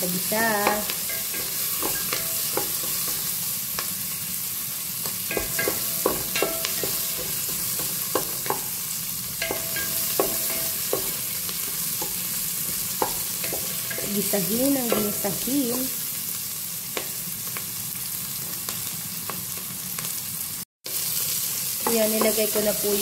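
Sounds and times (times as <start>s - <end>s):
food sizzling in a pot: 0.0s - 23.0s
wooden spoon tapping a metal pot: 0.5s - 3.3s, 5.3s - 8.8s, 9.4s - 16.0s, 21.8s - 22.7s.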